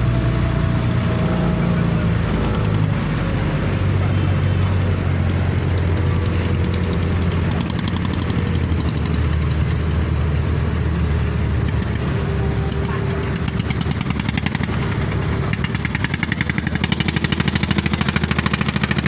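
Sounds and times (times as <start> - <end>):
boat engine humming: 0.0 - 19.0
water rushing: 0.0 - 19.0.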